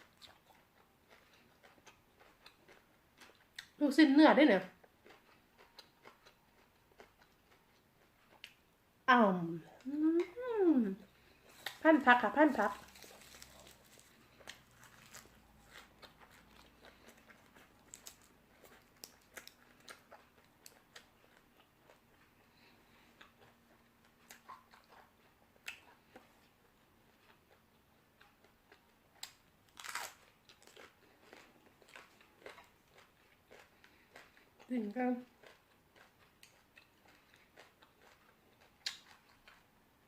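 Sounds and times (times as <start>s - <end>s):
chewing crisp raw vegetables: 0.0s - 3.8s, 4.6s - 8.6s, 9.8s - 39.7s.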